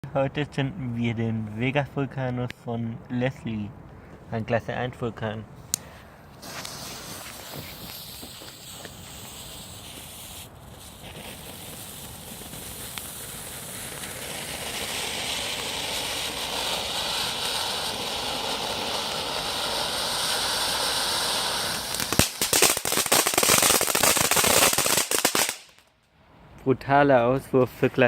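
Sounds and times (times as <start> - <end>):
firework fountain hissing: 5.7 - 25.8.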